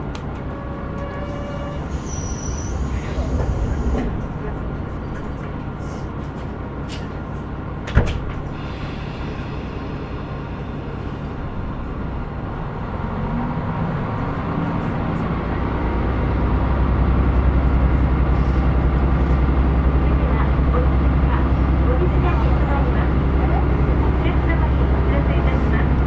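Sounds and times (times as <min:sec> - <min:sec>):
diesel engine drone: 0:00.0 - 0:26.0
train doors shutting thud: 0:02.4 - 0:05.6, 0:06.3 - 0:09.4.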